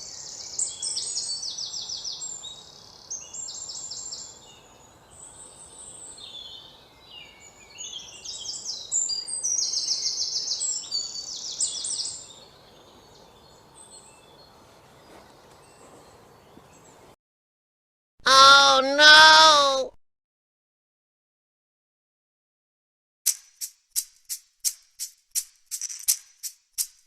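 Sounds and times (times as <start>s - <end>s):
faint outdoor background: 0.0s - 17.2s, 18.2s - 20.0s
songbird singing: 0.0s - 17.2s.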